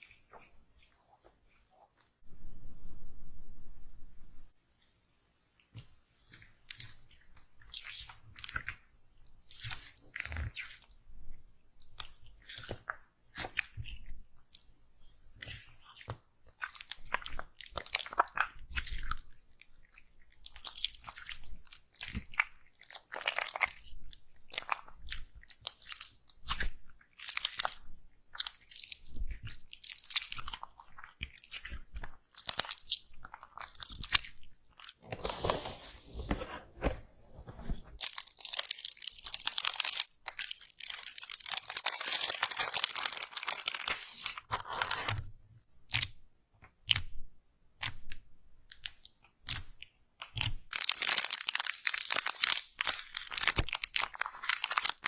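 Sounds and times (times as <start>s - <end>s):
slime squeezed crackling: 19.9s - 35.0s, 38.0s - 45.2s.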